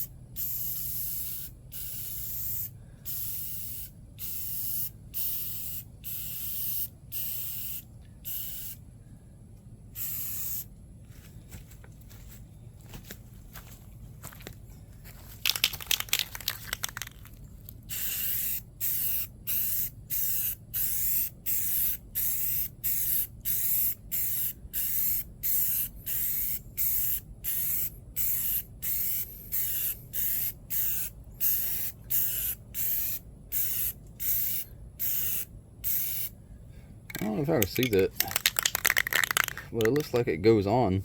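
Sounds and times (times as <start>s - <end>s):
spray paint bursts: 0.0s - 8.8s, 10.0s - 10.7s, 15.4s - 36.3s, 37.1s - 40.2s
crackling: 37.1s - 40.2s.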